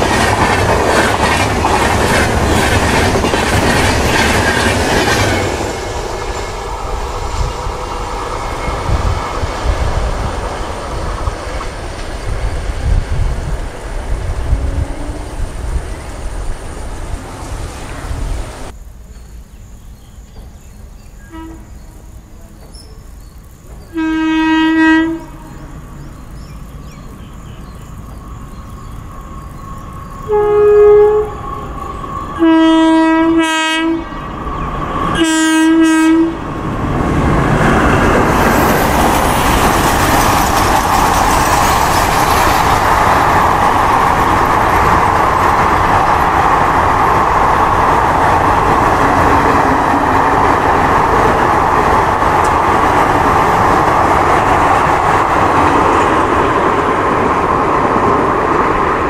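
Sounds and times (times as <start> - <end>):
train wheel-on-rail rumble: 0.0 - 59.0
locomotive horn blasts: 14.5 - 15.4, 21.2 - 21.7, 23.9 - 25.7, 30.3 - 31.4, 32.4 - 34.2, 35.2 - 36.4.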